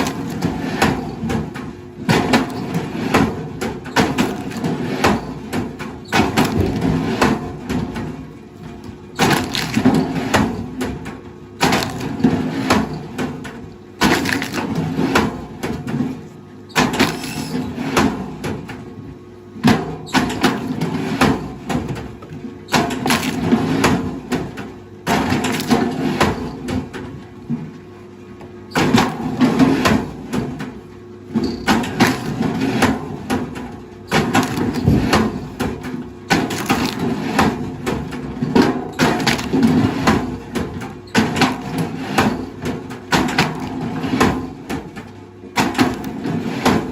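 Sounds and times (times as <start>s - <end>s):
heavy machinery crushing wood: 0.0s - 27.8s, 28.5s - 46.9s
wood cracking and splintering: 3.9s - 5.4s, 9.1s - 10.8s, 11.6s - 15.3s, 16.8s - 17.6s, 22.8s - 23.9s, 25.2s - 26.4s, 34.1s - 40.4s.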